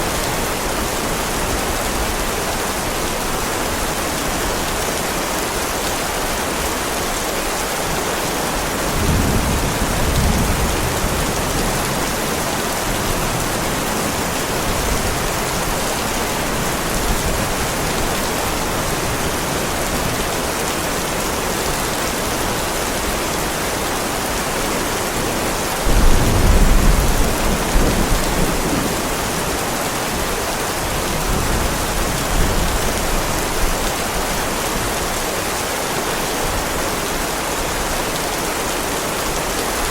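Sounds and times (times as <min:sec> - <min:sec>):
heavy rain on a driveway: 0:00.0 - 0:39.9
thunder rumbling: 0:08.9 - 0:15.8, 0:25.8 - 0:29.6.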